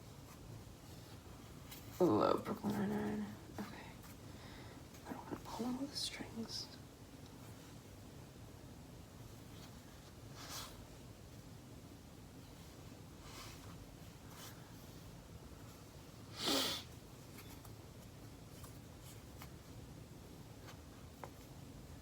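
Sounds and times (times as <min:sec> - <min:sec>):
faint ticks and rustles: 0:00.0 - 0:08.0, 0:17.0 - 0:22.0
air conditioner hum: 0:00.0 - 0:22.0.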